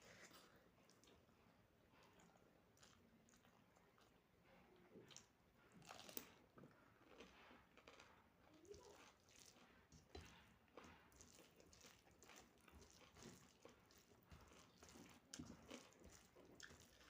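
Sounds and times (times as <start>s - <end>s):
person chewing food: 0.1s - 4.4s, 5.0s - 17.0s.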